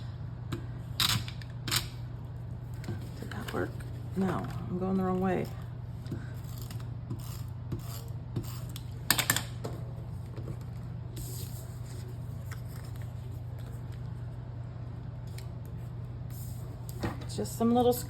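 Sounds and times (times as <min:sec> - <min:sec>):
steady low hum: 0:00.0 - 0:18.0
paper crackle: 0:10.7 - 0:14.1.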